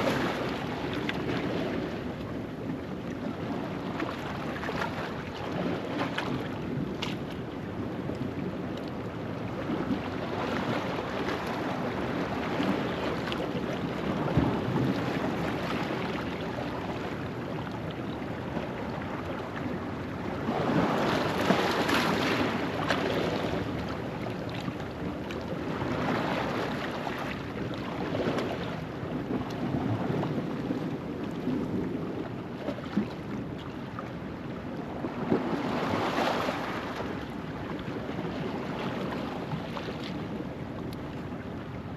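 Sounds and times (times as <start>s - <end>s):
waves washing over rocks: 20.3s - 32.1s.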